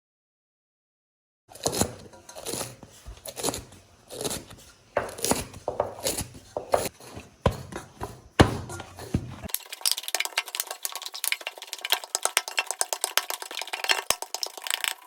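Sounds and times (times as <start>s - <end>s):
knife cutting food: 1.5s - 9.5s.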